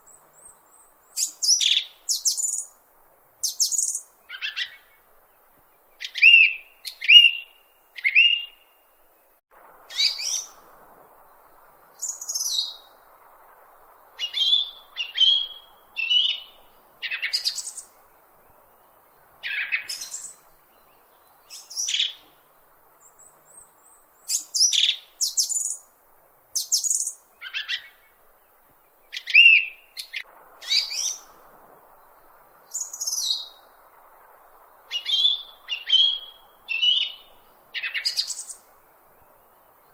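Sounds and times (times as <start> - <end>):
bird chirping and whistling: 8.1 - 8.5, 14.2 - 16.5, 35.0 - 37.2.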